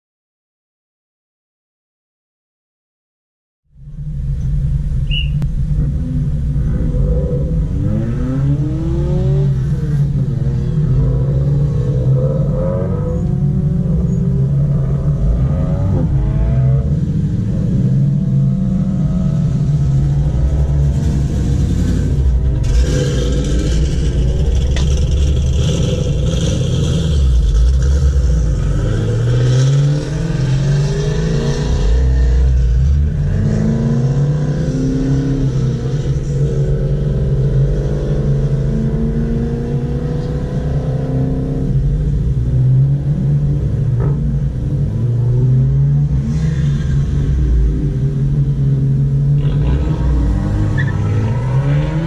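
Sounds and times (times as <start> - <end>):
steady low hum: 3.7 - 10.5
car engines idling and revving: 3.8 - 52.0.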